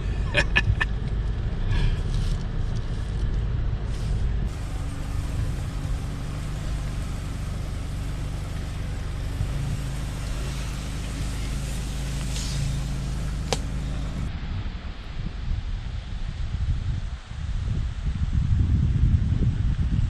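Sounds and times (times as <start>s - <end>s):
vehicle engine and road rumble: 0.0s - 20.0s.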